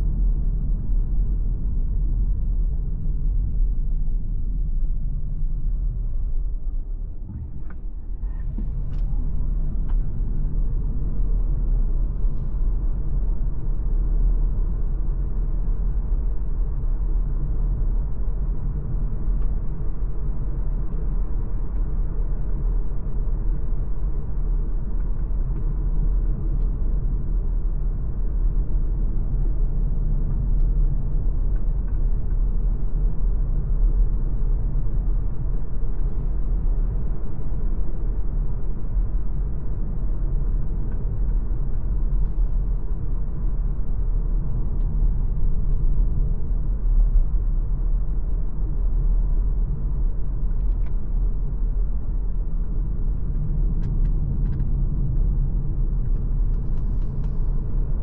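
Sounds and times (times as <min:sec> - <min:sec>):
car driving rumble: 0:05.4 - 0:14.5.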